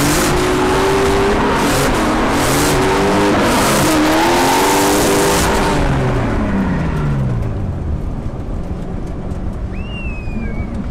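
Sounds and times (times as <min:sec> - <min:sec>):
race car engine at high revs: 0:00.0 - 0:07.8.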